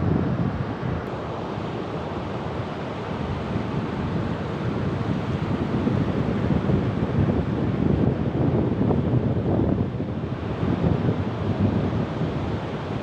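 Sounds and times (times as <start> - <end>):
wind buffeting microphone: 3.4 - 13.0.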